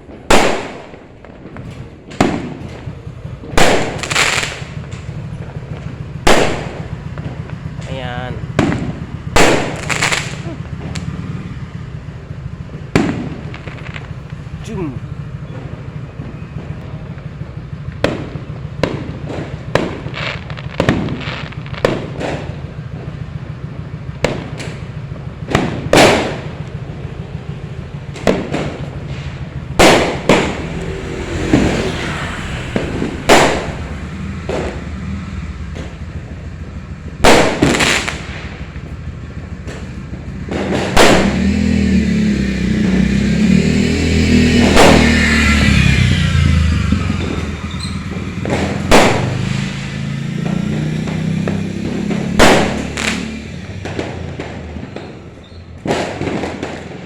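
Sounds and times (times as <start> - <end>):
fireworks exploding: 0.0 - 57.0
vehicle engine revving: 0.0 - 57.0
low rumble: 22.7 - 56.7.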